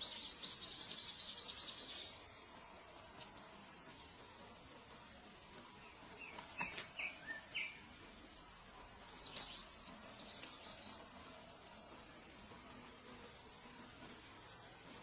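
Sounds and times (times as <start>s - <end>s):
small birds chirping: 0.0s - 2.3s, 5.6s - 8.0s, 9.0s - 11.2s.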